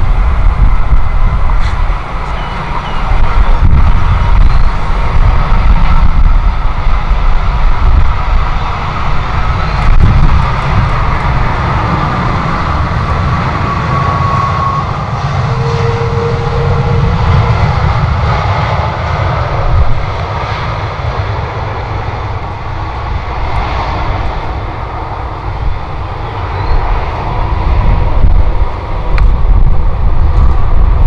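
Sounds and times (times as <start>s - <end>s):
faint whine: 0.0s - 18.7s
jet engines running: 0.0s - 31.0s.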